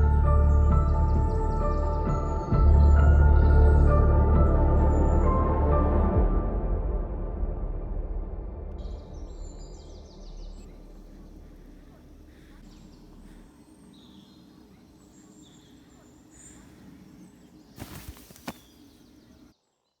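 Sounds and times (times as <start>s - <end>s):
music: 0.0s - 12.6s
bird chirps: 8.8s - 20.0s.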